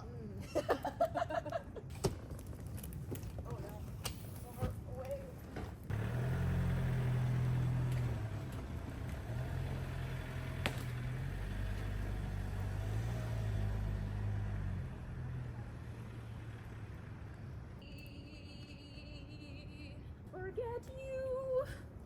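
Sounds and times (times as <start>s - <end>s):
vehicle engine humming: 5.8s - 21.5s.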